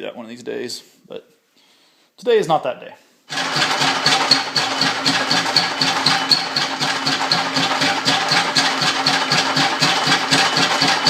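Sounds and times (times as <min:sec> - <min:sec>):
lathe machine hum: 0:03.3 - 0:11.0.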